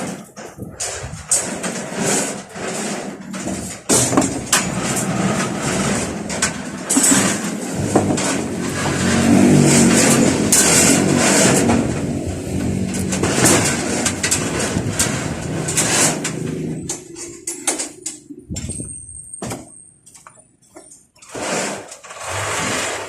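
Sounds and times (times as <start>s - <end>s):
sharp clicks and knocks: 3.2s - 22.1s
engine running: 4.5s - 17.3s.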